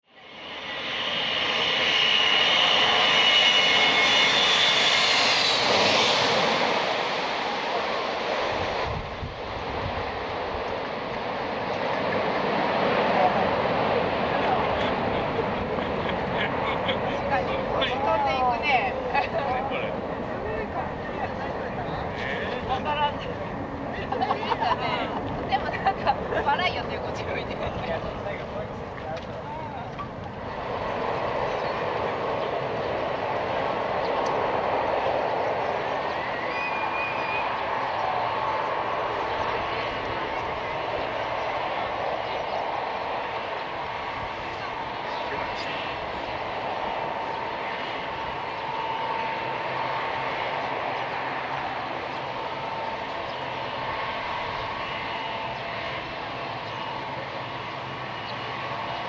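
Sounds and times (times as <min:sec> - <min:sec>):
jet engines rushing: 0:00.1 - 0:59.0.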